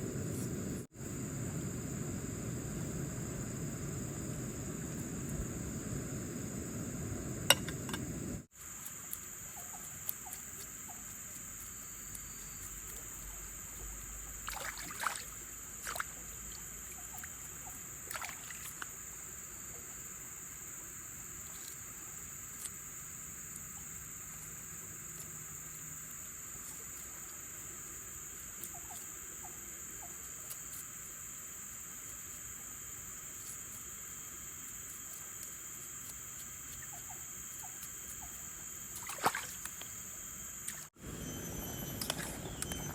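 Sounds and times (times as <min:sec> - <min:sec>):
low rumbling noise: 0:00.0 - 0:08.5
insects chorus: 0:00.0 - 0:42.9.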